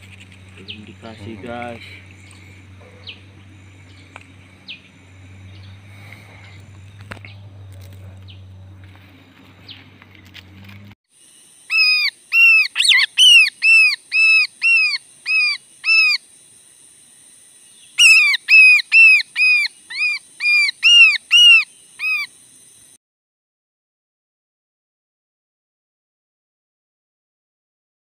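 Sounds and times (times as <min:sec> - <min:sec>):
faint low hum: 0:00.0 - 0:11.0
bird calling loudly: 0:11.7 - 0:16.2, 0:17.8 - 0:22.3.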